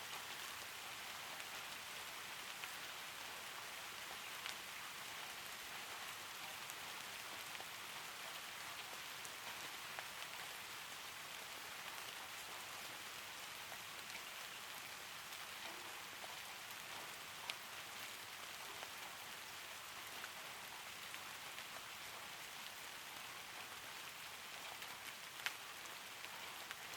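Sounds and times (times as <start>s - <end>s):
soft rain: 0.0s - 26.9s
raindrop ticks: 4.0s - 10.6s, 15.2s - 26.9s.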